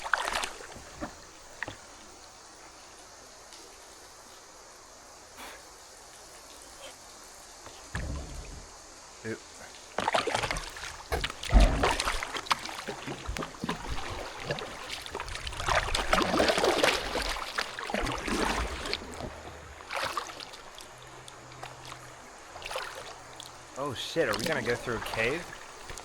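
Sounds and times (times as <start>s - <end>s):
kayak paddle splashing: 0.0s - 2.0s, 9.6s - 26.0s
water dripping: 6.0s - 26.0s
low thump: 7.9s - 8.7s.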